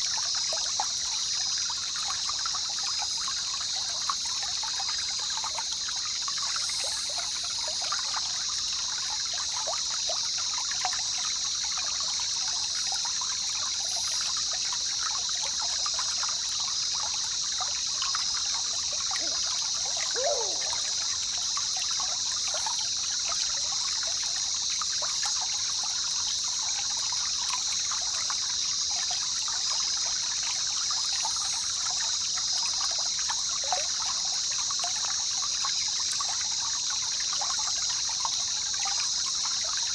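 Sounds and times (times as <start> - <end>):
water trickling and babbling: 0.0 - 39.9
brief falling call: 20.2 - 21.0.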